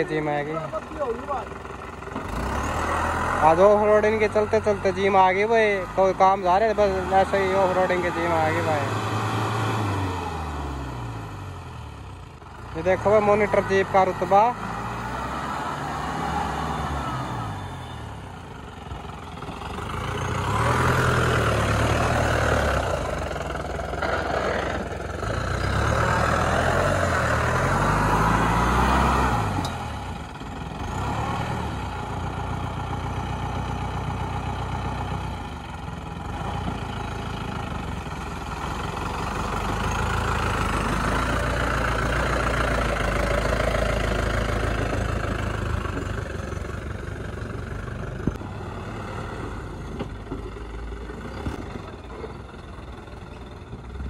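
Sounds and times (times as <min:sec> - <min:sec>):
jeep engine revving: 0:00.0 - 0:50.0.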